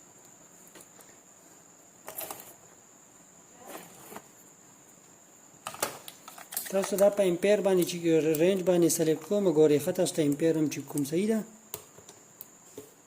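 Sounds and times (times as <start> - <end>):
faint high-pitched whine: 0.0 - 13.0
test gear rustling and clattering: 2.0 - 2.7, 5.6 - 7.2.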